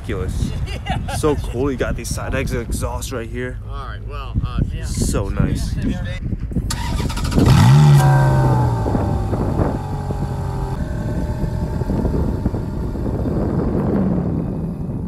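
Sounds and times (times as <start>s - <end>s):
car engine revving and idling: 6.8s - 15.0s.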